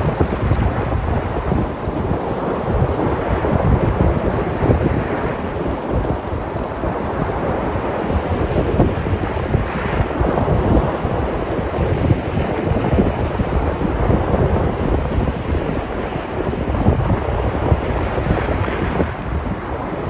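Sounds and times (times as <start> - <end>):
sea surf breaking on shore: 0.0 - 20.0
wind buffeting microphone: 0.0 - 20.0.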